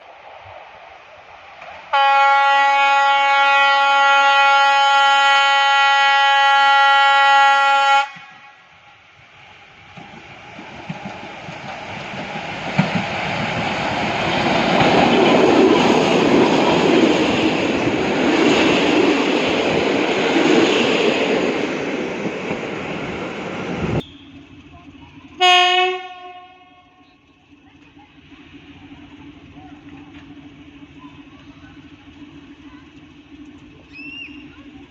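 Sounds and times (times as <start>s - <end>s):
diesel train passing: 0.0s - 34.9s
train horn blast: 1.9s - 8.7s, 25.4s - 27.0s.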